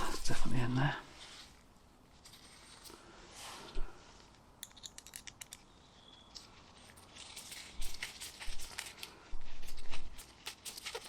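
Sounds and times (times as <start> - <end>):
rustling and scraping: 0.0 - 11.0
light clicks of small parts: 4.2 - 9.1.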